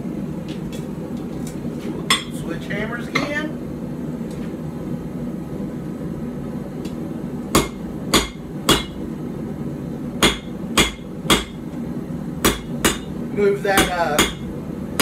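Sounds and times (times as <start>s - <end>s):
hammer striking steel on anvil: 2.1s - 2.4s, 7.5s - 9.0s, 10.2s - 11.6s, 12.4s - 14.5s.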